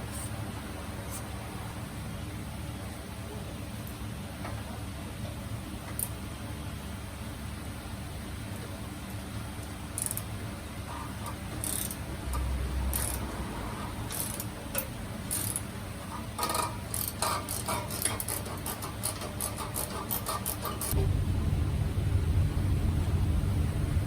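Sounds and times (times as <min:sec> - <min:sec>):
steady low hum: 0:19.5 - 0:24.0.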